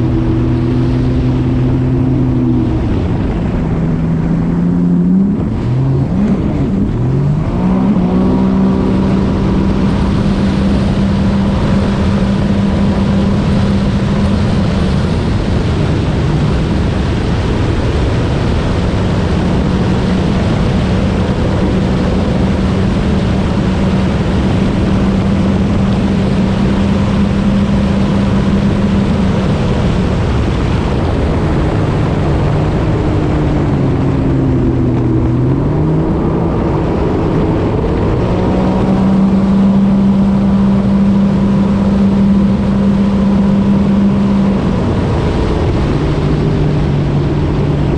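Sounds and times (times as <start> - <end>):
jet ski engine accelerating: 0.0 - 47.9
rushing water and air: 0.0 - 47.9.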